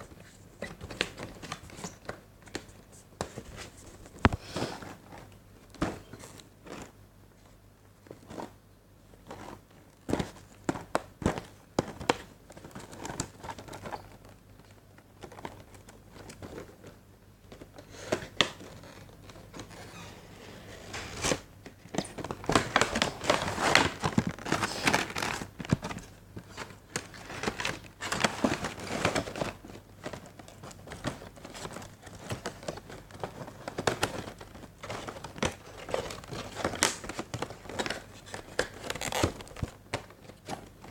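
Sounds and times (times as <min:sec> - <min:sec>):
plastic packaging crinkling: 0:21.1 - 0:40.9.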